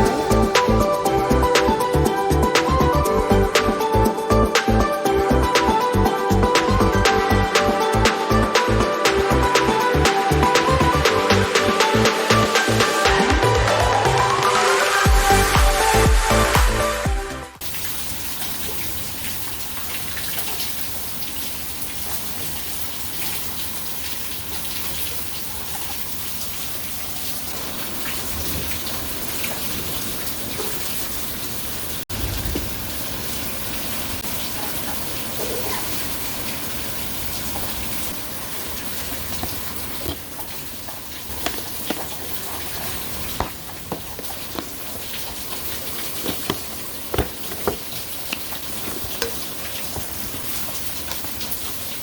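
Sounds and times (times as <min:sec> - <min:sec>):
rain pattering: 0:17.6 - 0:52.0.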